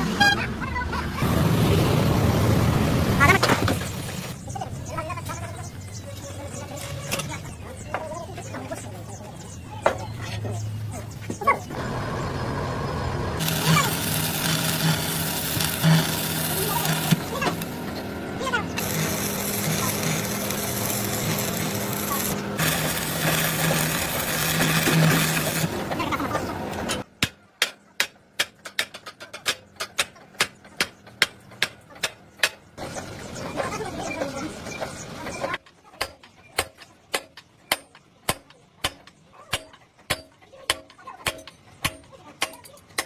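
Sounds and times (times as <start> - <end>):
machine humming: 11.7 - 27.0
loud hiss: 13.4 - 17.8.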